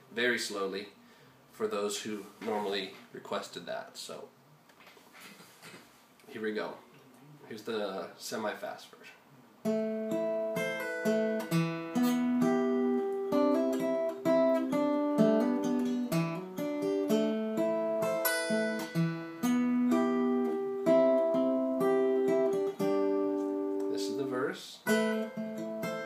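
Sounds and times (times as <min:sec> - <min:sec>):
acoustic guitar fingerpicking: 0:09.6 - 0:24.2, 0:24.8 - 0:26.0.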